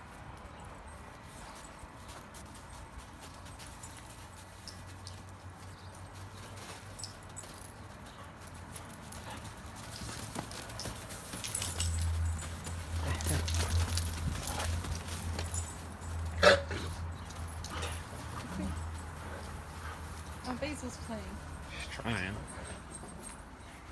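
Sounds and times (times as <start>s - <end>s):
dog feet scuffling on floor: 0.9s - 21.7s.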